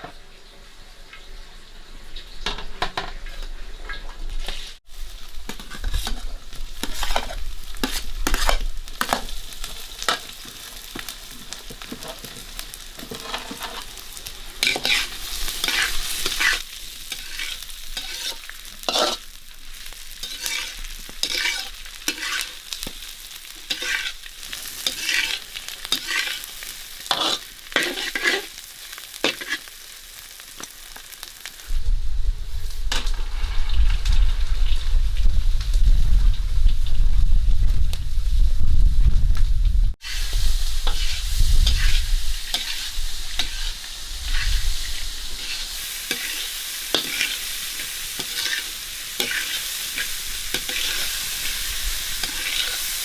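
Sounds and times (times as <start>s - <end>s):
food sizzling in a pan: 0.0s - 39.0s, 39.9s - 53.0s
spatula scraping a pan: 4.4s - 29.8s, 40.0s - 53.0s.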